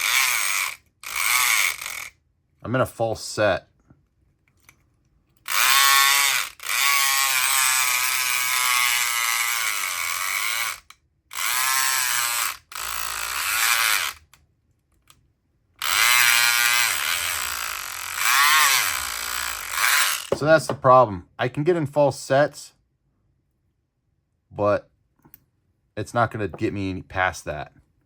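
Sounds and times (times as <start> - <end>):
electric lock pick gun buzzing: 0.0 - 2.2, 5.4 - 14.4, 15.8 - 20.8.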